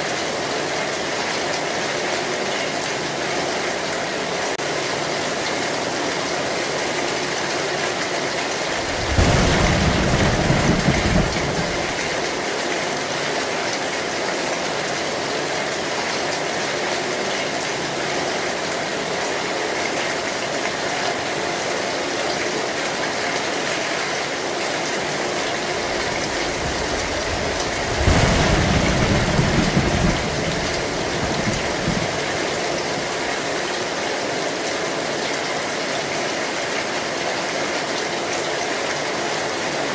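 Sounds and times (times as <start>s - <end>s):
rain on a metal roof: 0.0s - 39.9s
thunder rolling: 8.6s - 12.4s, 25.4s - 32.8s.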